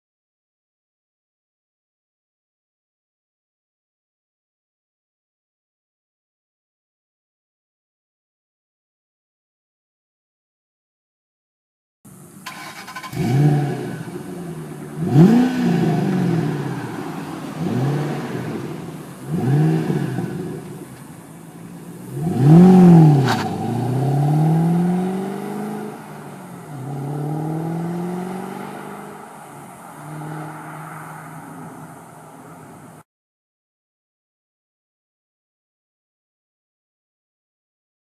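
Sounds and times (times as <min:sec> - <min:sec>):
car engine revving: 0:12.2 - 0:33.0.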